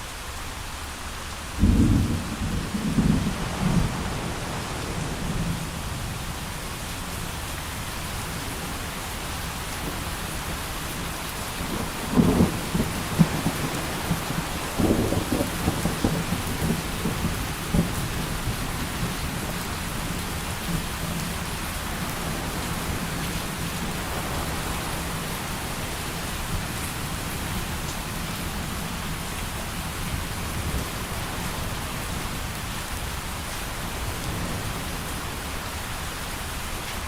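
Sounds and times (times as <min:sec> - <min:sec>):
heavy rain pouring: 0:00.0 - 0:37.0
thunder rumble: 0:01.6 - 0:07.4, 0:11.6 - 0:21.2.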